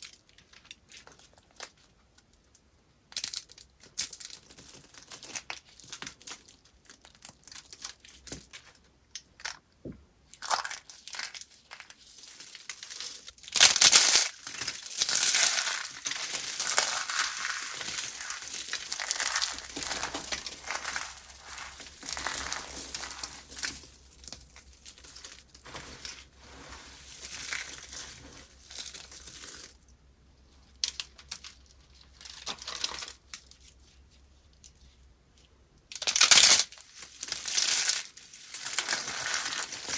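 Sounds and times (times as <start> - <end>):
dry soap crunching: 10.3 - 29.8, 35.9 - 39.9.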